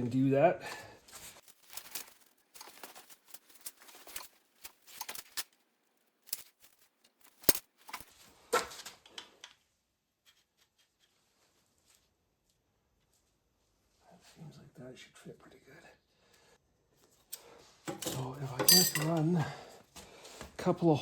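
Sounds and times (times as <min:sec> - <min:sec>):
steel plate clicking and rustling: 0:06.3 - 0:08.1, 0:17.9 - 0:19.2.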